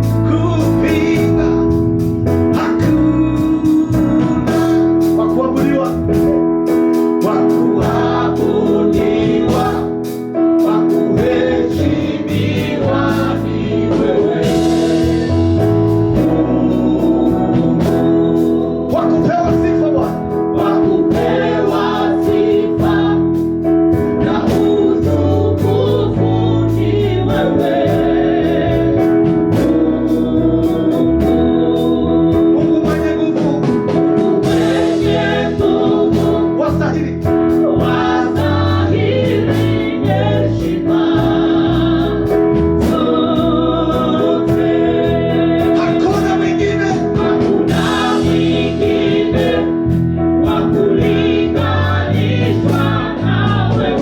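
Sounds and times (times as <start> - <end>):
bass: 0.0 - 54.0
organ chords: 0.0 - 54.0
steady drum beat: 0.0 - 54.0
choir singing: 7.2 - 33.2, 34.1 - 54.0.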